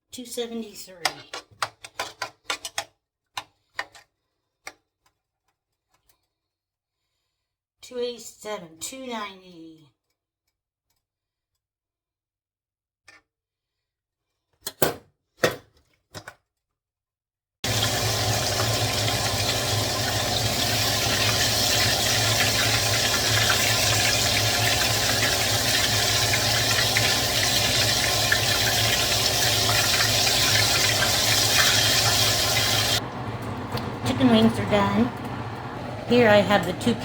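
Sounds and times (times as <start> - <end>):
chicken deep-frying in oil: 17.6 - 37.0.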